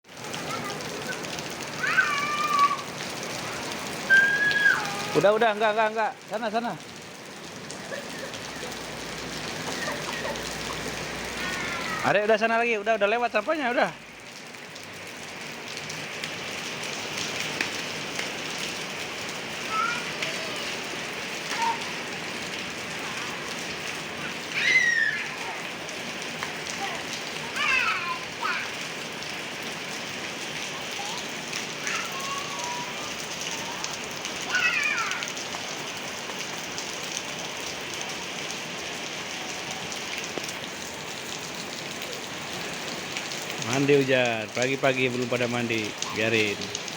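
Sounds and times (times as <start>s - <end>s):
steady rain falling: 0.0s - 46.9s
high-pitched cry: 1.8s - 2.9s, 4.0s - 5.2s, 11.4s - 12.1s, 21.5s - 22.0s, 24.2s - 25.6s, 27.6s - 28.8s, 31.8s - 33.9s, 34.5s - 35.3s.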